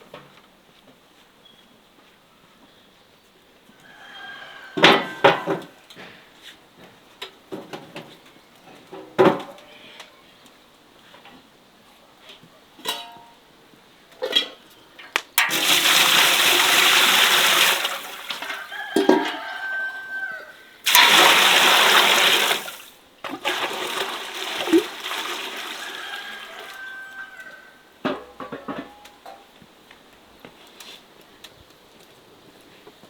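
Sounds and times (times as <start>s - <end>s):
water pouring: 15.4s - 19.4s, 20.9s - 27.1s.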